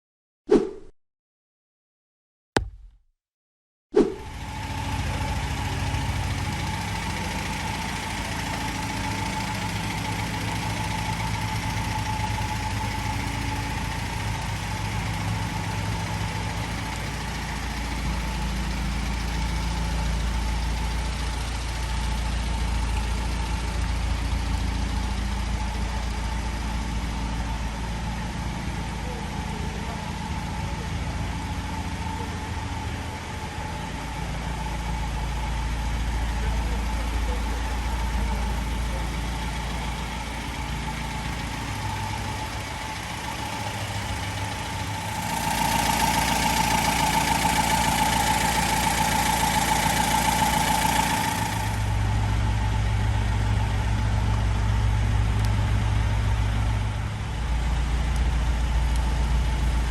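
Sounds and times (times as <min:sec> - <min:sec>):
engine idling: 0:04.2 - 0:59.9.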